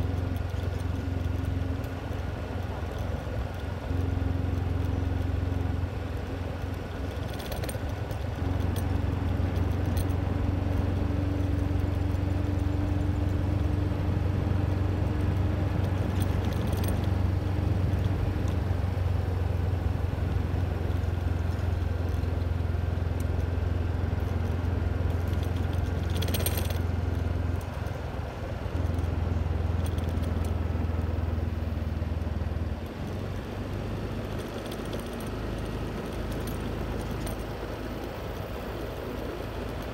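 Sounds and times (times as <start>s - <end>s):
motor vehicle rumble: 0.0s - 39.9s
short clinks and rattles: 6.4s - 13.4s, 15.2s - 18.6s, 21.2s - 30.9s, 32.9s - 38.5s.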